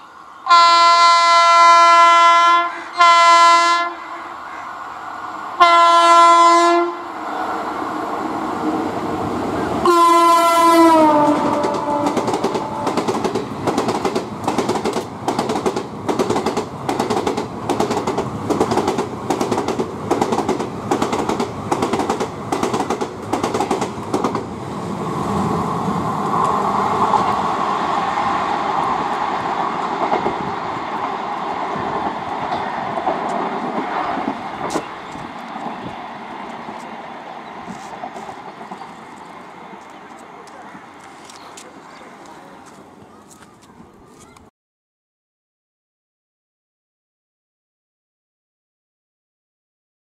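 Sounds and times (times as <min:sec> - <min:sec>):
locomotive horn blasts: 0:00.4 - 0:04.3, 0:05.6 - 0:07.1, 0:09.8 - 0:13.0
train rolling rumble: 0:03.3 - 0:44.4
train wheels clicking over rail joints: 0:11.2 - 0:24.6, 0:28.7 - 0:44.4.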